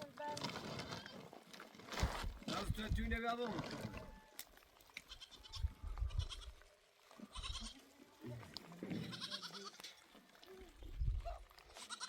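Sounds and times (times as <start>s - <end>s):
goats bleating: 5.0s - 6.6s, 7.2s - 7.9s, 8.7s - 10.0s, 11.6s - 12.0s.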